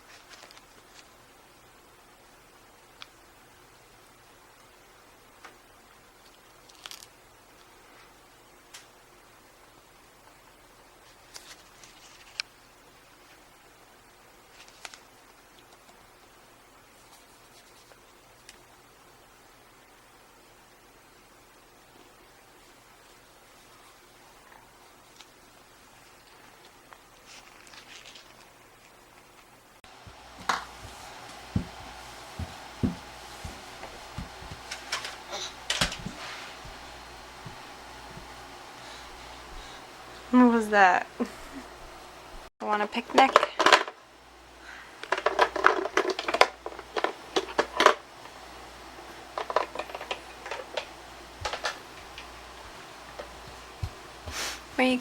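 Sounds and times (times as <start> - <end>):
small objects clicking and tapping: 45.0 - 48.0.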